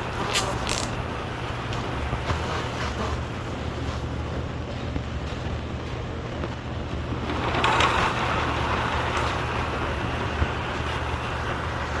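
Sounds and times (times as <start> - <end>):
rough grinding noise: 0.0 - 1.1
electric bike hub motor running: 0.0 - 12.0.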